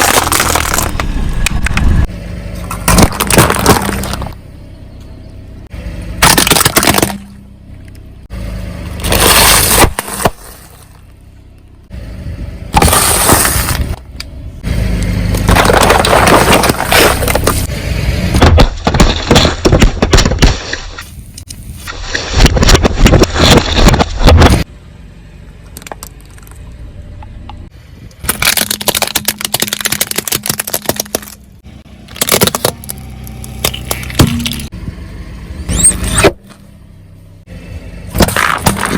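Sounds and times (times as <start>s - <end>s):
tyres crushing crunchy objects: 0.0s - 4.4s, 6.2s - 7.4s, 8.9s - 11.0s, 12.7s - 14.0s, 15.0s - 24.7s, 28.2s - 34.7s, 38.1s - 38.9s
car engine running quietly: 3.9s - 6.2s, 24.7s - 28.2s.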